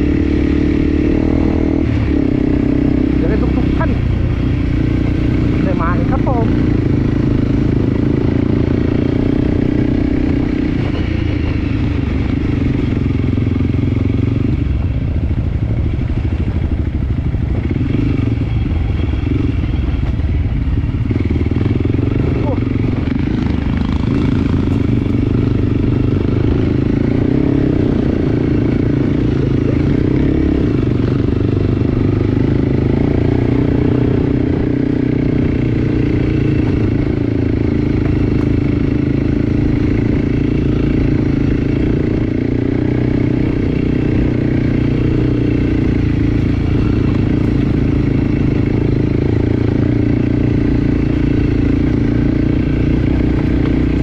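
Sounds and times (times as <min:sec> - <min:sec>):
dirt bike engine running: 0:00.0 - 0:54.0.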